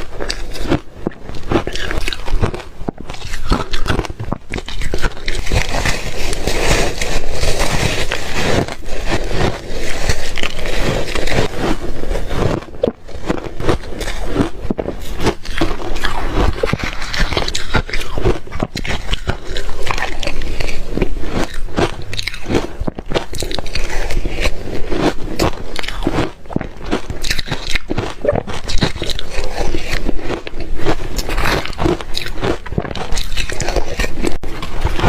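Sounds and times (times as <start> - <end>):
crunching and chewing ice: 0.0 - 35.0.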